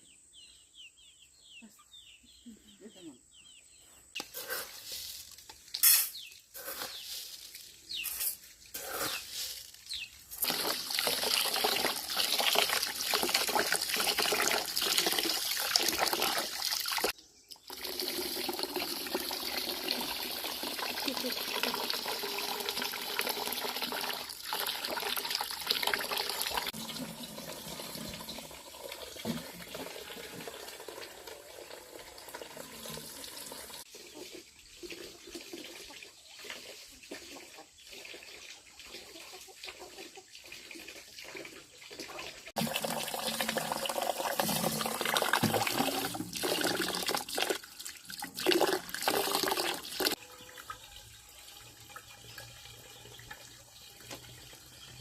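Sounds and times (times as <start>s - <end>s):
water pouring and splashing: 4.2s - 55.0s.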